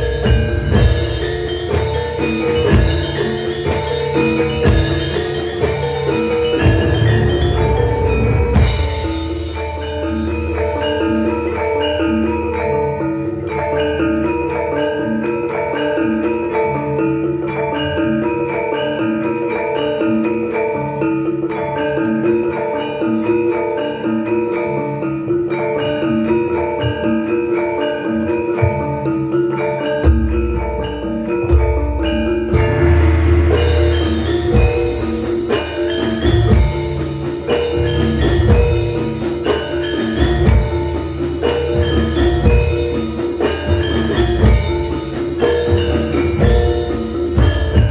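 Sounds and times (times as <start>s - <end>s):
gamelan ensemble playing: 0.0s - 47.9s
deep low drum beat: 31.4s - 47.9s.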